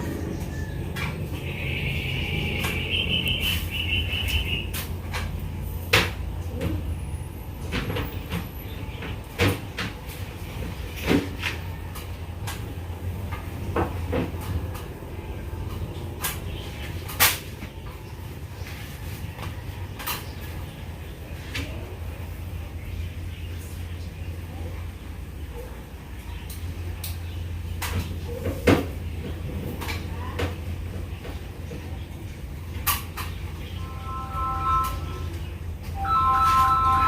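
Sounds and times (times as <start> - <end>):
high-pitched chirping: 2.8 - 4.7.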